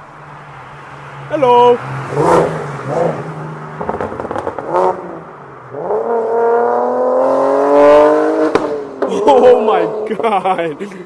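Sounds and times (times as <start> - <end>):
car engine accelerating hard: 2.0 - 10.4.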